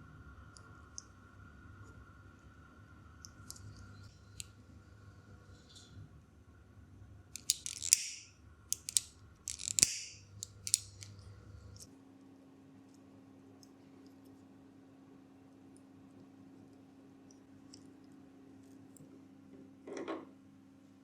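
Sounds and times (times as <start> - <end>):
hand tool clicking: 7.4 - 11.1
snips cutting: 7.4 - 11.1.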